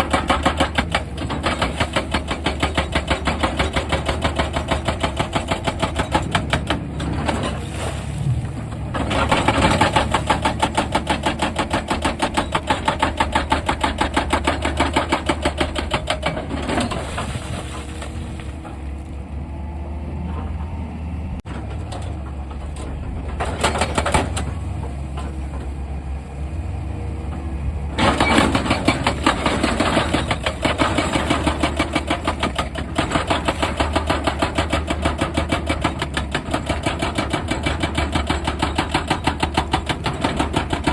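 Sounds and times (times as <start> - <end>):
hydraulic breaker hammering rock: 0.0 - 7.6, 8.9 - 17.1, 28.0 - 40.9
diesel engine humming: 5.8 - 13.9, 17.3 - 28.1.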